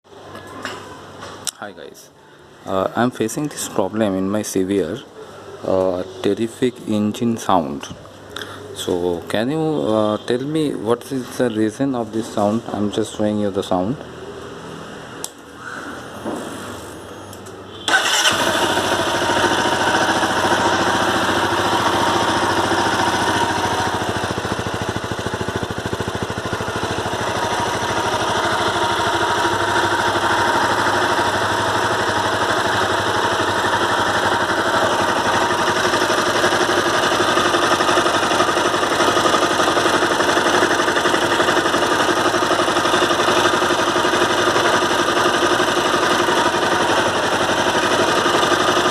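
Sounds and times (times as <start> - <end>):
motorcycle engine running: 17.9 - 48.9.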